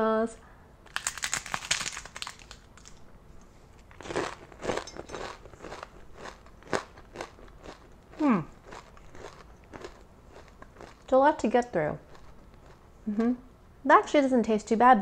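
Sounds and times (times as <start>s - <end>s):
crunchy chewing: 3.8s - 11.1s, 12.0s - 12.8s
person humming mm: 8.2s - 8.5s, 13.0s - 13.5s.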